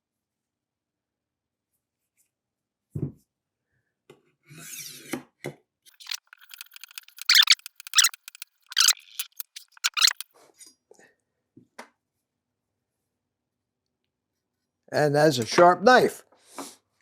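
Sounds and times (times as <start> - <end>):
knife sharpener rasping on blade: 5.9 - 10.2.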